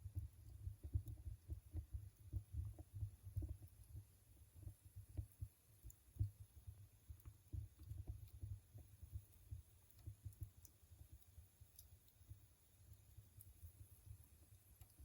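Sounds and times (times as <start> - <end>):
fire crackling: 0.1 - 15.0.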